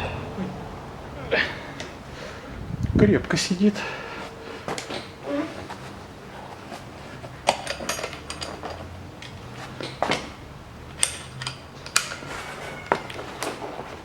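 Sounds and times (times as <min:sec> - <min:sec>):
metal hand tools clinking: 0:00.0 - 0:00.6, 0:07.5 - 0:10.2.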